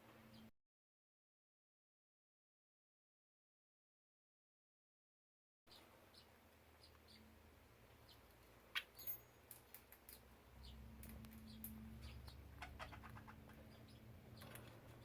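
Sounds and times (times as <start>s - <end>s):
budgies chirping: 5.7s - 7.3s, 7.9s - 9.2s, 10.5s - 15.0s.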